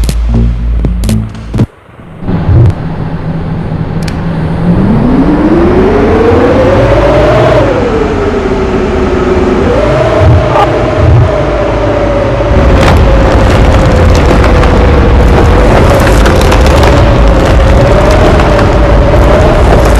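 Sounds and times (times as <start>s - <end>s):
vehicle engine revving: 0.0s - 19.9s.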